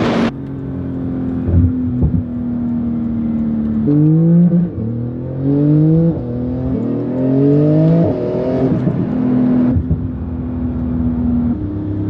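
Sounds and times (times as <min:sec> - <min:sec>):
car accelerating through gears: 0:03.4 - 0:09.9.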